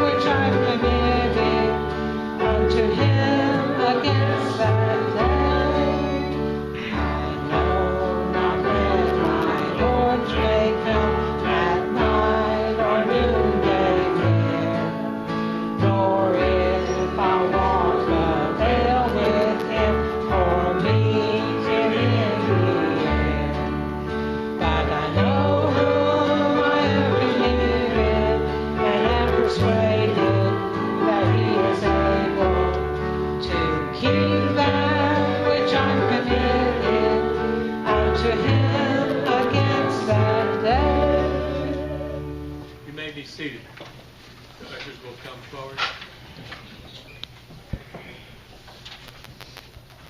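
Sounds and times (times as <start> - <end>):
strummed guitar: 0.0 - 43.1
worship singing: 0.0 - 44.2.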